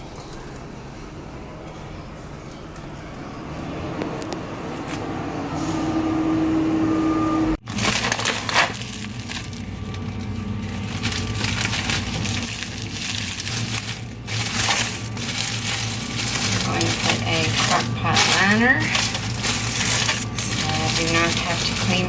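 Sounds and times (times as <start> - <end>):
steady hum: 0.0 - 22.0
plastic liner crinkling: 7.7 - 22.0
held tone: 17.0 - 19.2.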